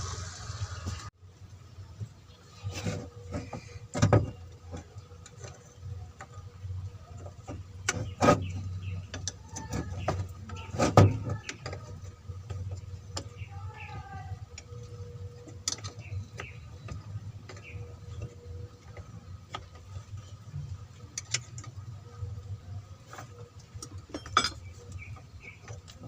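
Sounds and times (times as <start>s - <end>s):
metal tools clinking: 23.9s - 24.9s.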